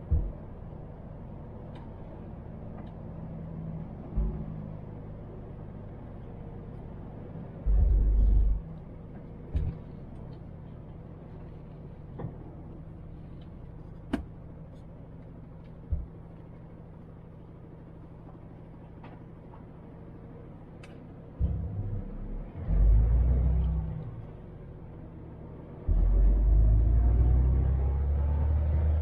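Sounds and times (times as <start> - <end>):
heavy low thud: 0.0 - 0.6, 7.7 - 8.8, 9.5 - 9.9, 21.4 - 21.9
truck diesel engine running: 0.0 - 29.0.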